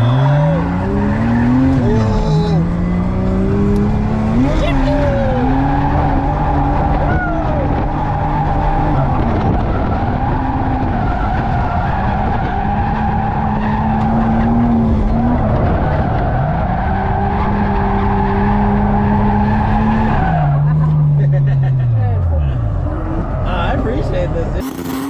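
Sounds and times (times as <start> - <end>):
tyre squeal: 0.0 - 2.6
car engine at high revs: 0.0 - 25.0.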